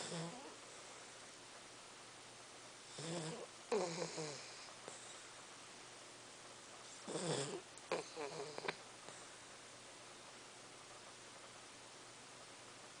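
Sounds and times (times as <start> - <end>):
dog snoring: 0.0 - 0.6, 2.9 - 5.1, 6.9 - 8.8.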